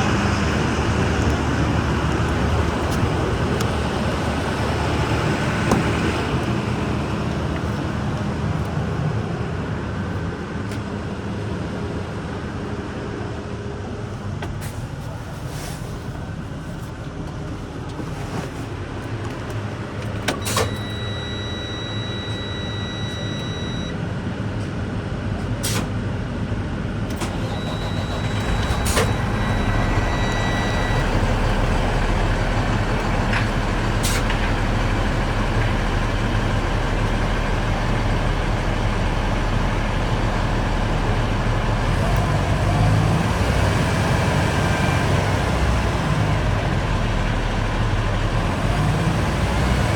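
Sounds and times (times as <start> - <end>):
vacuum truck humming: 0.0 - 10.2, 16.2 - 49.9.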